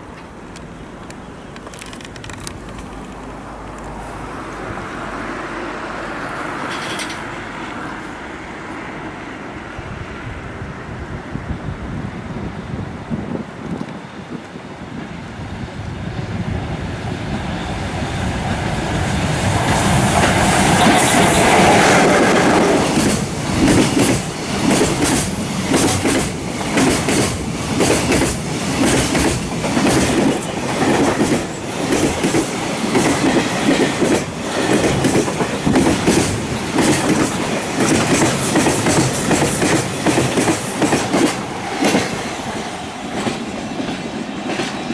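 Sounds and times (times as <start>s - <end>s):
train rumbling past: 0.0s - 44.9s
wheels clattering over rail joints: 6.6s - 7.4s.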